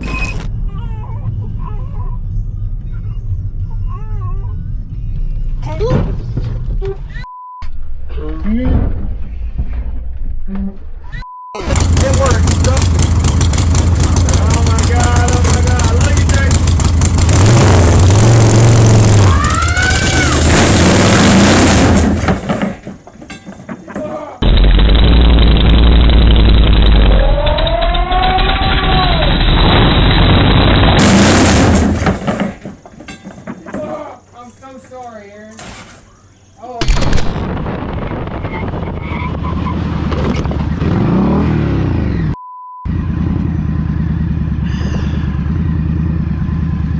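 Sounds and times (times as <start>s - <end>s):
thin steady beep: 0.0s - 0.5s, 42.4s - 42.9s
vehicle engine running loudly: 11.6s - 22.0s, 24.4s - 31.6s, 39.8s - 46.9s
rising and falling whine: 24.4s - 31.0s.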